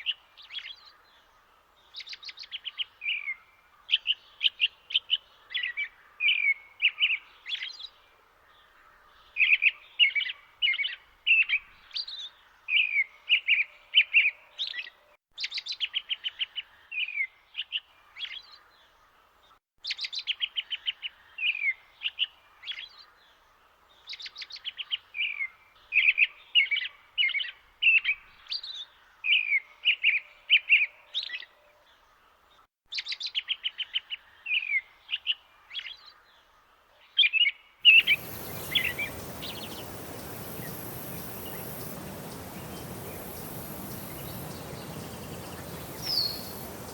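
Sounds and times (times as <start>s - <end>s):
songbirds trilling and whistling: 37.9s - 46.9s.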